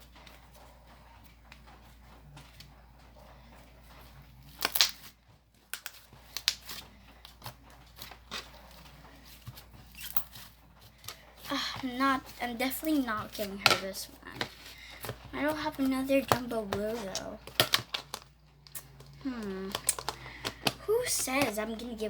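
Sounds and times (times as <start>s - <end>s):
slime squished by hand: 4.5s - 8.8s.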